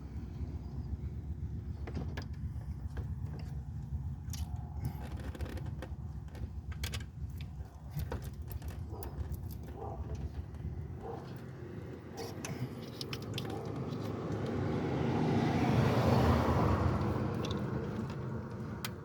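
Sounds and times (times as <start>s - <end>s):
steady low rumble: 0.0s - 14.7s
metallic clicks of hand tools: 12.2s - 14.6s.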